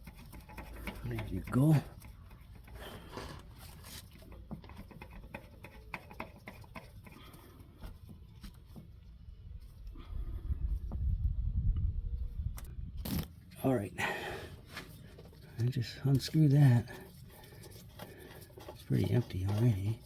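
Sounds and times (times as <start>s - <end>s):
hands handling tools and parts: 0.0s - 10.0s, 14.6s - 20.0s
low rumble: 9.8s - 13.0s.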